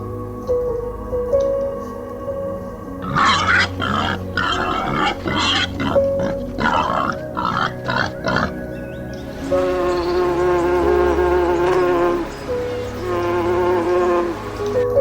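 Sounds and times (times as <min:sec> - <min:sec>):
background music: 0:00.0 - 0:15.0
animal harsh calls: 0:03.0 - 0:08.6.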